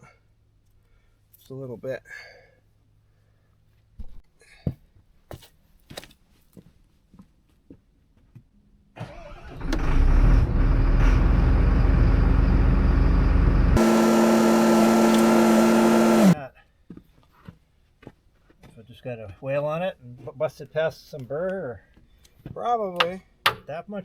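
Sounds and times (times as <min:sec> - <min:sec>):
motor running: 0:11.2 - 0:16.4.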